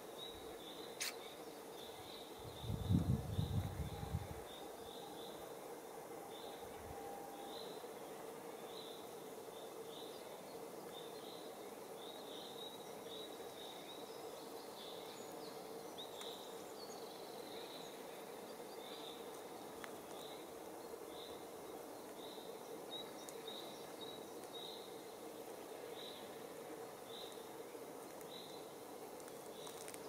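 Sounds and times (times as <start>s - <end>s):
background hiss and hum: 0.0s - 30.0s
small bird chirping: 0.3s - 4.1s.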